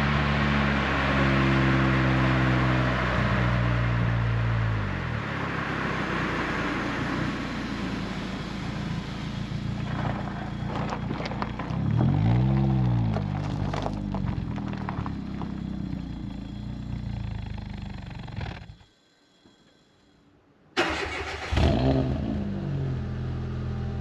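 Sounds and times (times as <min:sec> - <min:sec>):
car engine exhaust note: 0:00.0 - 0:18.8, 0:21.6 - 0:24.0
road and wind noise: 0:00.0 - 0:18.9, 0:20.8 - 0:24.0
exhaust crackles: 0:05.4 - 0:18.9.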